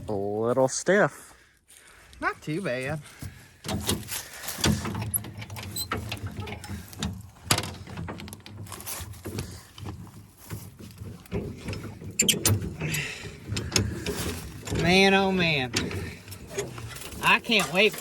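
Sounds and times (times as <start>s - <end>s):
metal clanks and knocks: 3.6s - 18.0s.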